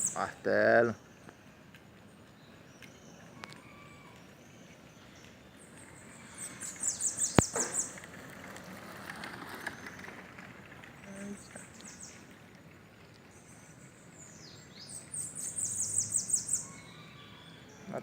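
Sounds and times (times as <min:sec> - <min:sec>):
faint bird twittering: 0:00.0 - 0:08.1, 0:10.9 - 0:12.4, 0:13.2 - 0:18.0.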